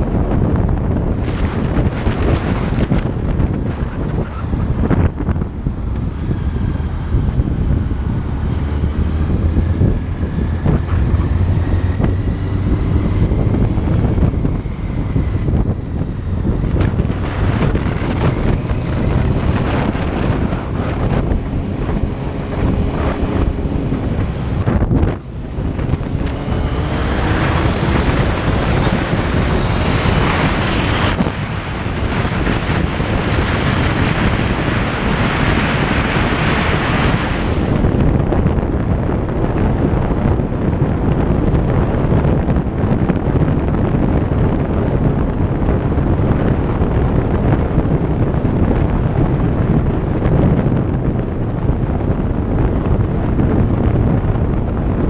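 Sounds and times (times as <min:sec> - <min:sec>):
motorcycle running: 0:00.0 - 0:55.0
wind buffeting microphone: 0:00.0 - 0:55.0.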